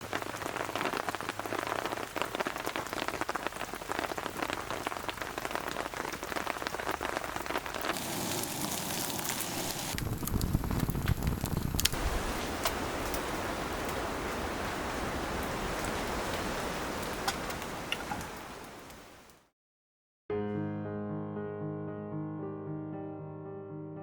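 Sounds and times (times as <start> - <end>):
rain pattering: 0.0 - 19.4
steady hiss: 7.9 - 15.0.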